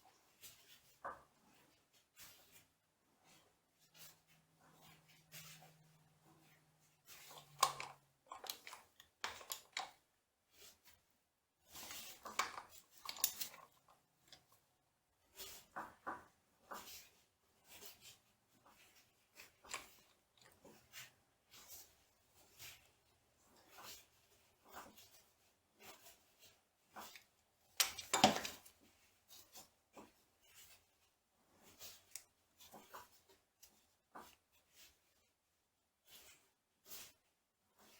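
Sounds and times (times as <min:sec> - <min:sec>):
metal parts clinking and clanking: 0:07.3 - 0:09.9, 0:12.0 - 0:13.8, 0:27.8 - 0:28.6
metal tools clinking and scraping: 0:11.9 - 0:14.4, 0:27.8 - 0:28.7.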